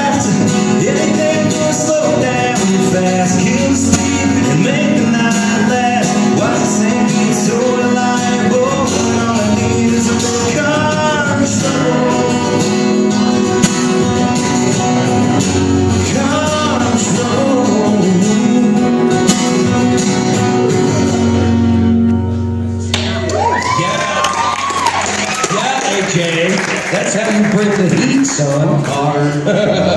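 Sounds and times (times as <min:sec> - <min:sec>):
person singing: 0:00.0 - 0:13.4, 0:15.9 - 0:19.3
acoustic guitar: 0:00.0 - 0:29.9.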